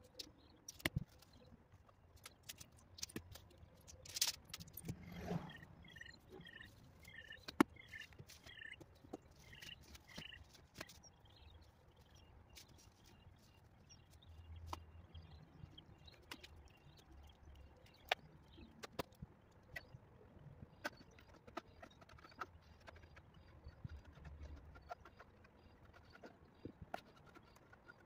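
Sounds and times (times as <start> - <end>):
birds chirping: 2.3 - 20.0.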